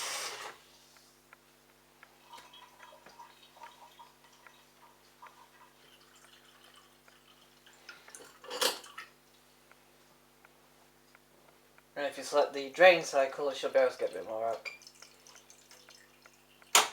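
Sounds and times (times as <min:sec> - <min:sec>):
water dripping and trickling: 0:02.0 - 0:09.5, 0:12.8 - 0:16.9.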